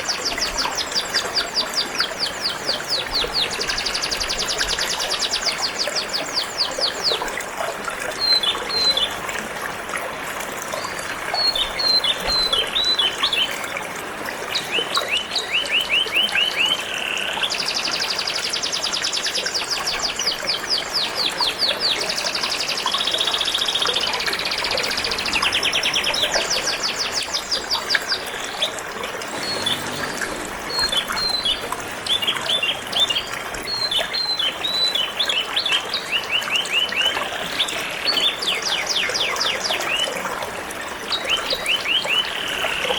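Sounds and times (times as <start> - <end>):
flowing water rushing: 0.0 - 42.9
canary singing trills: 23.0 - 40.1.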